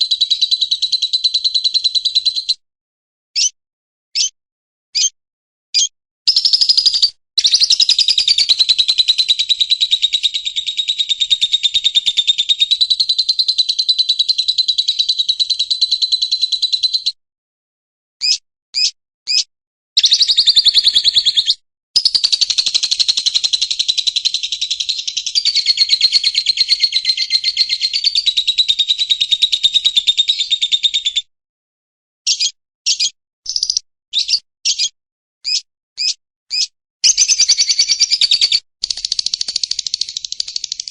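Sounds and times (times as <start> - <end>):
bird chirps: 0.0 - 2.6, 3.4 - 17.2, 18.2 - 31.3, 32.3 - 40.9
bird rapid trills: 6.3 - 16.3, 20.0 - 30.9, 36.6 - 40.9.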